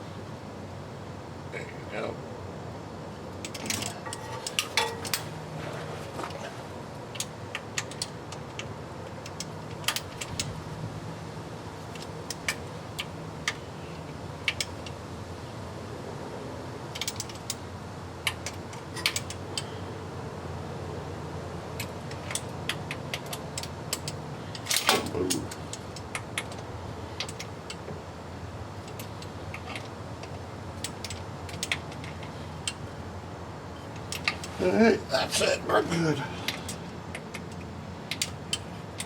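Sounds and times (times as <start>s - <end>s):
light metal clinks: 3.4s - 5.3s.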